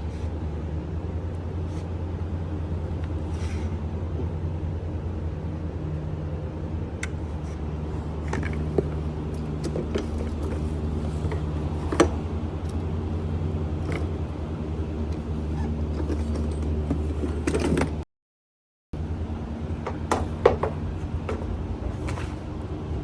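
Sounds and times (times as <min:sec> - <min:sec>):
engine running steadily: 0:00.0 - 0:18.0, 0:19.0 - 0:23.0.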